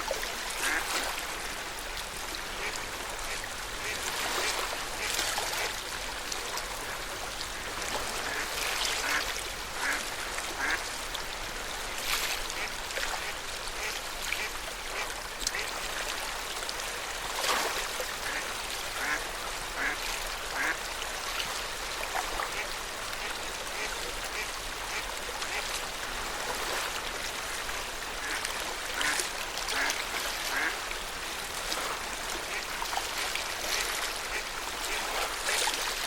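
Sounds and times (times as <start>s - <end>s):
small waves lapping at shore: 0.0s - 36.0s
quack-like calls: 0.6s - 1.0s, 8.2s - 9.2s, 10.6s - 10.8s, 19.0s - 19.2s, 19.8s - 20.0s, 20.6s - 20.8s, 29.0s - 30.8s.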